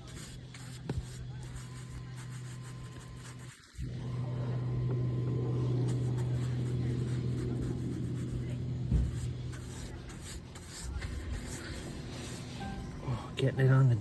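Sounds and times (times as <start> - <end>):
low motor hum: 3.8 - 10.2.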